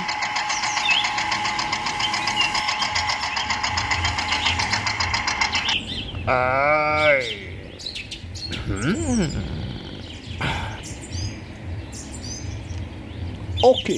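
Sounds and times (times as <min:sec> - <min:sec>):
small motor rattling: 0:00.0 - 0:05.8
birds chirping faintly: 0:00.0 - 0:13.9
person speaking: 0:08.5 - 0:10.8.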